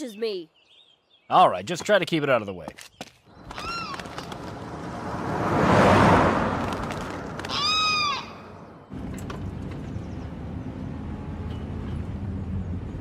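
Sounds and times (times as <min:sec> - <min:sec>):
car engine humming: 0:03.3 - 0:13.0.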